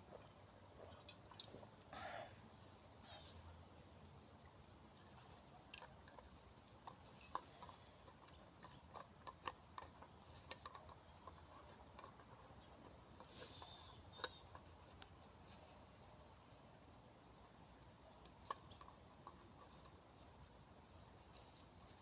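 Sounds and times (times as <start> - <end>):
faint rustle: 0.0 - 22.0
faint small clicks: 17.3 - 22.0.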